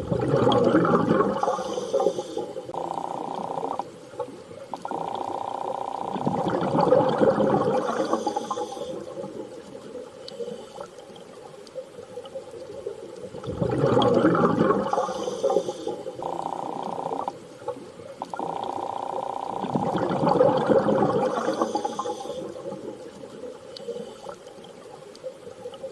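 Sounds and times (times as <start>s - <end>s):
steady hum: 0.0s - 11.7s
underwater rushing bubbling water: 0.0s - 25.9s.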